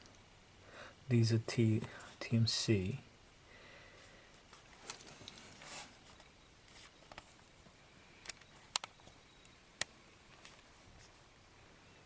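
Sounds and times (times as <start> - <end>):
soft rustle: 3.9 - 7.8, 10.2 - 11.4
sharp little clicks: 8.2 - 10.0.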